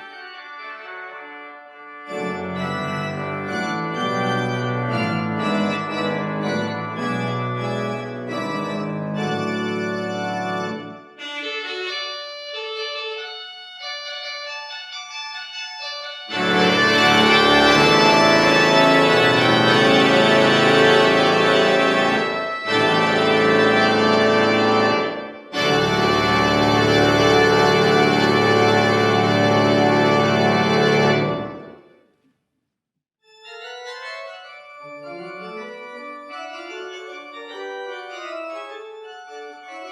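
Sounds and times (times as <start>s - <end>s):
pipe organ chords: 0.0s - 13.2s, 13.8s - 31.8s, 33.8s - 39.9s
organ rising notes: 2.1s - 11.0s, 16.3s - 31.8s.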